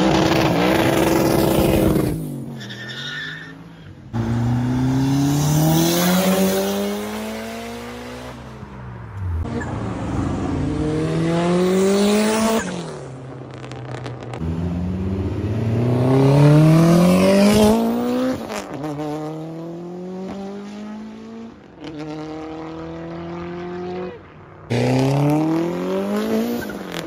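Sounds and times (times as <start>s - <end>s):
car engine revving: 4.2s - 13.1s, 13.7s - 27.0s.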